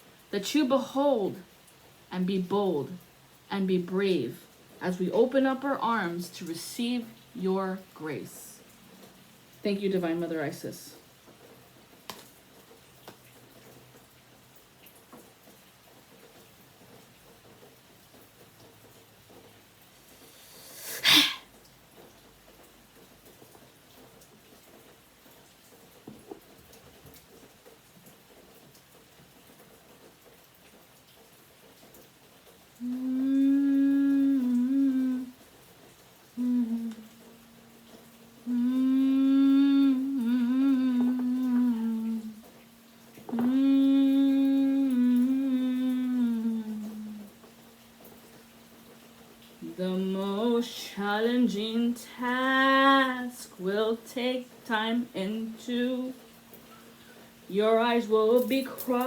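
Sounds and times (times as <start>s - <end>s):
low steady hum: 31.8s - 59.0s
person humming low notes: 32.8s - 35.4s, 36.4s - 37.2s, 38.4s - 42.4s, 43.3s - 47.3s.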